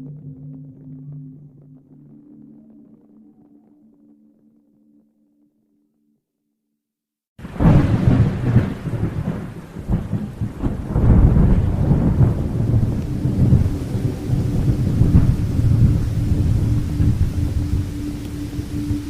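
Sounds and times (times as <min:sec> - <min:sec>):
steady low tone: 0:00.0 - 0:05.4, 0:10.4 - 0:19.0
deep rolling thunder: 0:07.4 - 0:19.0
heavy rain: 0:07.4 - 0:19.0.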